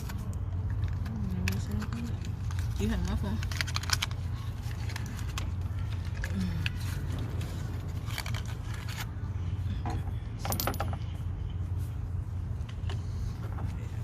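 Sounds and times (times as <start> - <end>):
steady low hum: 0.0 - 14.0
small metal parts clinking: 10.4 - 11.0.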